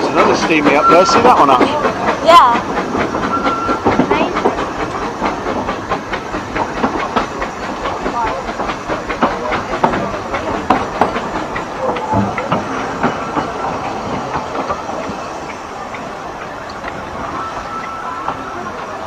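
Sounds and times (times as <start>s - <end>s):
steam hissing: 0.0s - 19.0s
train wheels clacking on rail joints: 0.0s - 19.0s.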